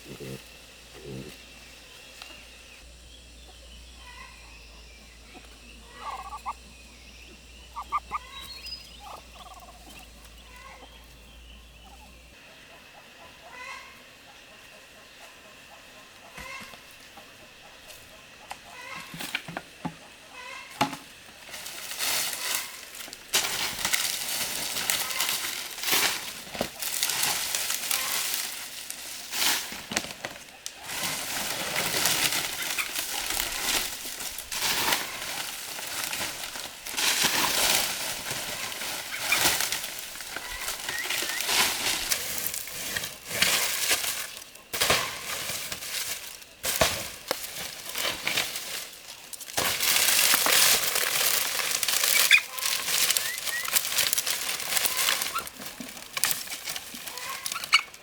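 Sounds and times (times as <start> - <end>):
chicks peeping: 0.0 - 20.8, 23.8 - 28.9, 30.4 - 42.6, 50.0 - 58.0
loud rustling and crackling: 21.5 - 58.0.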